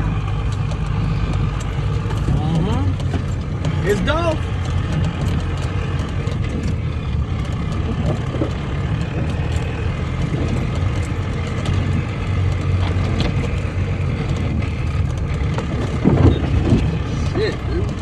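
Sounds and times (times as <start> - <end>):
light knocks and rattles: 0.0 - 18.0
off-road vehicle engine rumble: 0.0 - 18.0.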